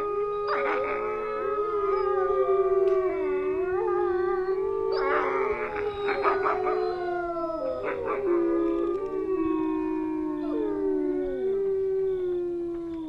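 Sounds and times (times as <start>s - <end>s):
wolves yipping: 0.0s - 1.0s, 4.9s - 9.2s
wolves howling in chorus: 0.0s - 13.0s.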